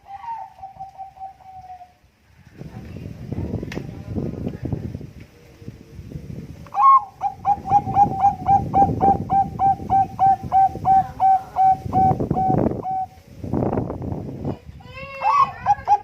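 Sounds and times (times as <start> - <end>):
dove cooing: 0.0 - 2.0, 6.7 - 13.2, 15.2 - 16.0.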